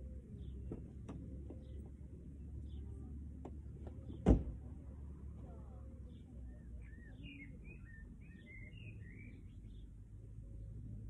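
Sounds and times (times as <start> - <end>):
wild birds chirping: 0.2 - 3.4, 5.5 - 10.6.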